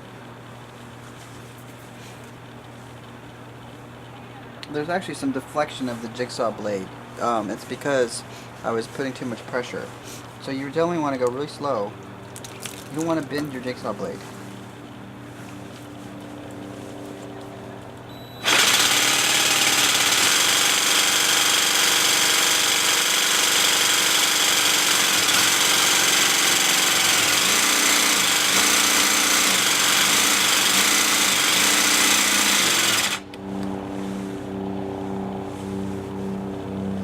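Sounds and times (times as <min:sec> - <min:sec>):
jigsaw cutting through tile: 0:18.4 - 0:33.2.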